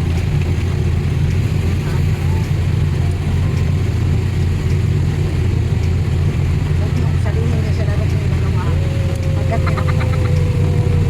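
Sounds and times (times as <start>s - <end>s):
vehicle rumbling on the move: 0.0s - 11.0s.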